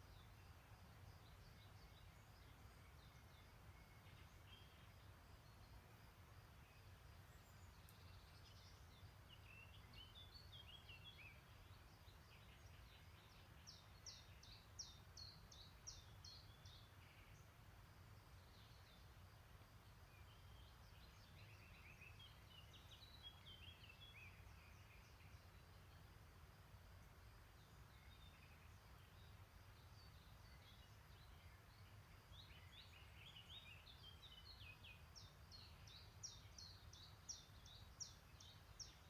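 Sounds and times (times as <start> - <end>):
faint songbird song: 0.0 - 39.0.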